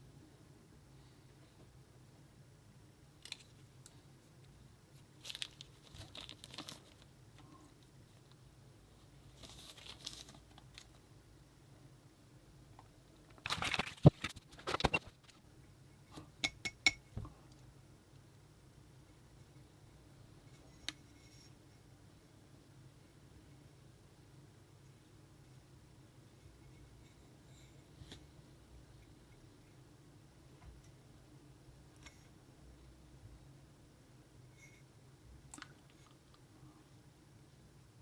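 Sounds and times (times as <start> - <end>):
packaging rustling and crinkling: 5.2 - 7.1, 9.3 - 11.0, 13.4 - 15.4.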